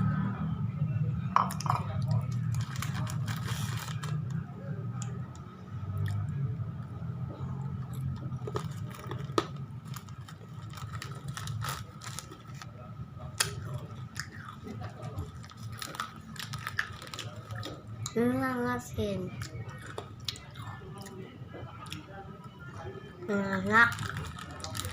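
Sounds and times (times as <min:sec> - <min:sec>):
chips crunching while chewed: 0:01.5 - 0:04.3, 0:07.8 - 0:12.7, 0:13.4 - 0:18.2, 0:19.4 - 0:21.2, 0:23.6 - 0:24.9.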